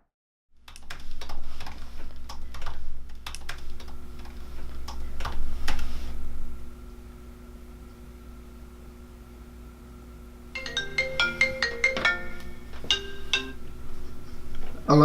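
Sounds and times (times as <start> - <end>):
steady low hum: 0.6 - 15.0
keyboard typing clicks: 0.7 - 5.8.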